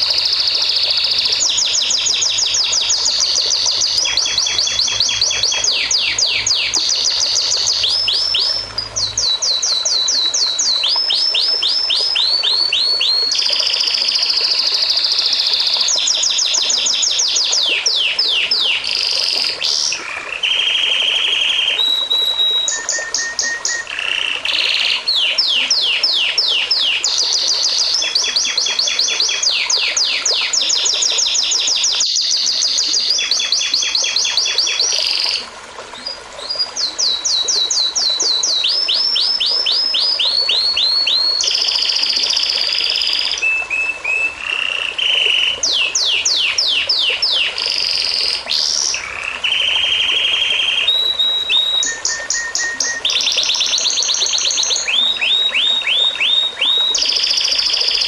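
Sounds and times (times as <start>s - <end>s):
songbirds trilling: 0.0s - 13.8s.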